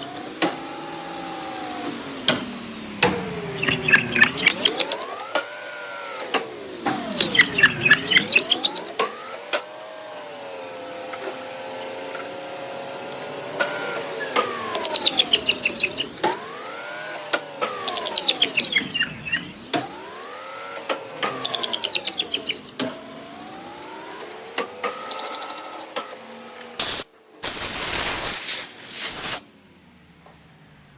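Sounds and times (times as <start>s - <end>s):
electric motors whining: 0.0s - 29.8s
rapid sharp clicking: 13.1s - 26.2s.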